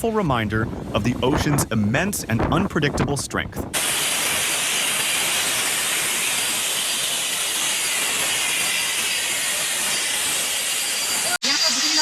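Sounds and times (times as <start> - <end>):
wind: 0.0 - 12.0
surf crashing: 3.7 - 11.6.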